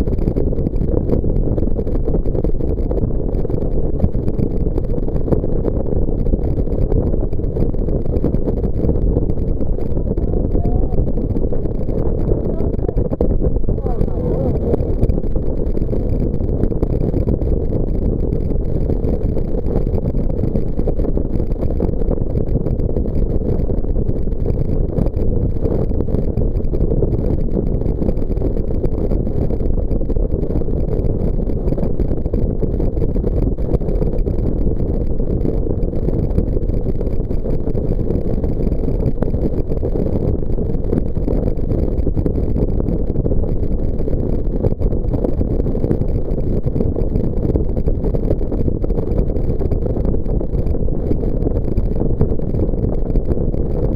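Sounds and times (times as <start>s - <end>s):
jet boat engine rumble: 6.1s - 18.7s.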